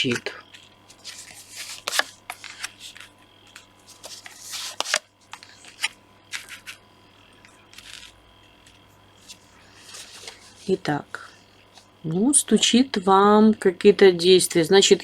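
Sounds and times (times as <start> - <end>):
cards shuffling: 0.0 - 6.8, 7.7 - 10.7.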